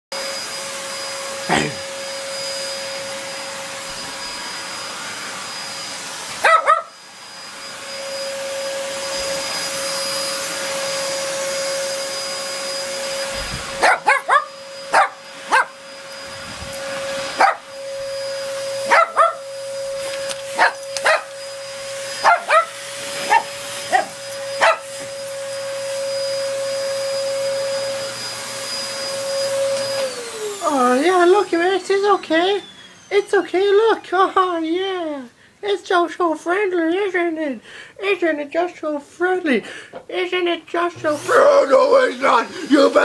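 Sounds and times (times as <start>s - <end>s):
vacuum cleaner whining: 0.1s - 39.0s, 39.6s - 43.0s
small dog barking: 6.4s - 7.0s, 13.8s - 15.7s, 17.4s - 17.6s, 18.9s - 19.4s, 20.6s - 21.3s, 22.2s - 24.9s.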